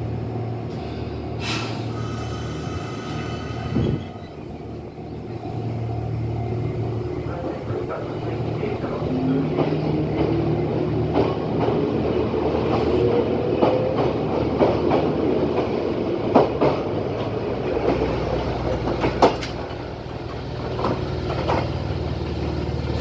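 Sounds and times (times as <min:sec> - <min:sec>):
steady train rumble: 0:00.0 - 0:23.0
wheels clacking over rail joints: 0:07.2 - 0:23.0.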